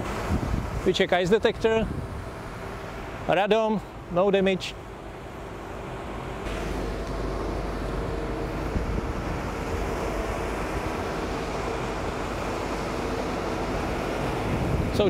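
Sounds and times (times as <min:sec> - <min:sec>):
wind noise on microphone: 0:00.0 - 0:02.9, 0:06.5 - 0:15.0
aircraft engine hum: 0:00.0 - 0:15.0.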